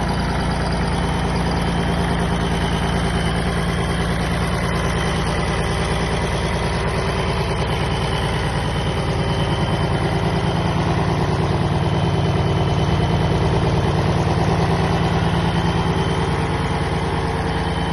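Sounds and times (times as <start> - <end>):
diesel generator running: 0.0 - 17.9.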